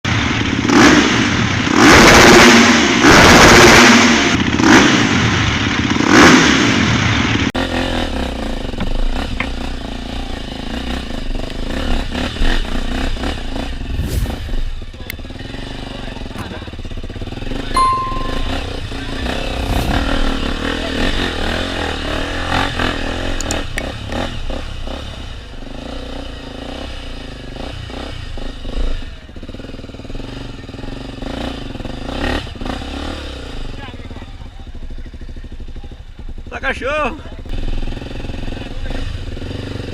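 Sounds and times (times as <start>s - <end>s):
dirt bike engine revving: 0.3s - 16.3s, 17.1s - 33.8s.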